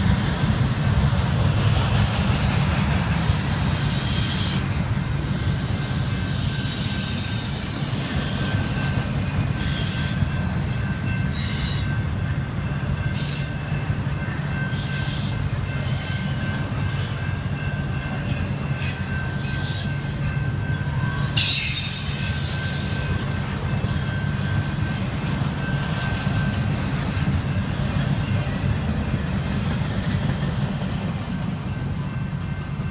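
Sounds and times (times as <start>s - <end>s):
high-pitched metal squeals: 0.0s - 0.8s, 18.8s - 23.2s
freight train rumbling past: 0.0s - 32.9s.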